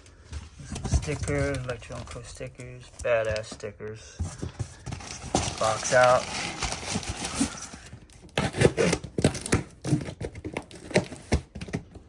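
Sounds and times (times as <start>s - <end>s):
packaging rustling: 0.4s - 12.0s
packaging tearing: 5.0s - 11.6s.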